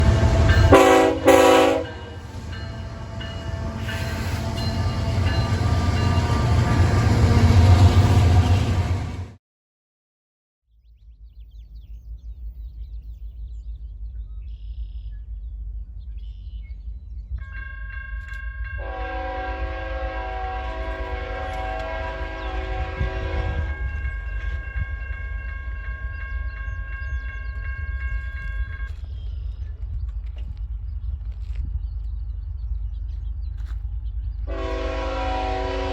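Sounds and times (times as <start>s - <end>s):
train air horn blast: 0.0s - 2.3s, 18.8s - 23.9s, 34.5s - 35.9s
diesel train rumble: 0.0s - 9.4s, 12.3s - 35.9s.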